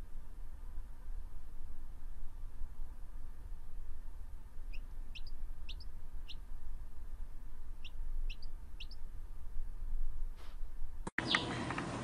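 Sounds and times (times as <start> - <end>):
baby bird peeping: 4.6 - 9.1, 11.2 - 11.7.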